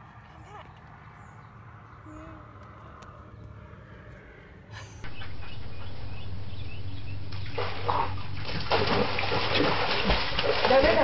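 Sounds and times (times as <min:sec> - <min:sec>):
steady outdoor hum: 0:00.0 - 0:11.0
dog pawing water splashing: 0:07.3 - 0:11.0.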